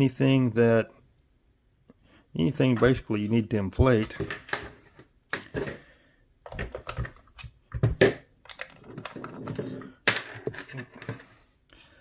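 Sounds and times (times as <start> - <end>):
plastic parts clicking together: 6.4 - 11.2.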